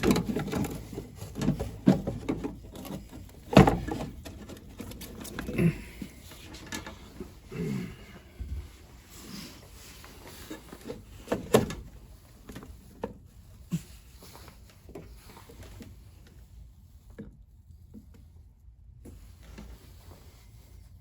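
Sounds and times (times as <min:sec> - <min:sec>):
knocks and clicks of objects handled: 0:00.0 - 0:07.4.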